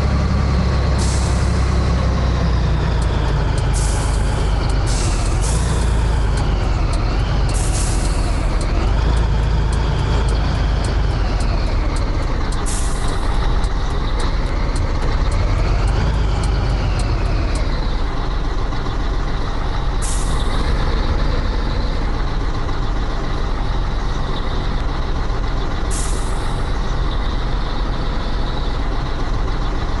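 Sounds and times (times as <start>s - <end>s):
truck diesel engine running: 0.0s - 30.0s.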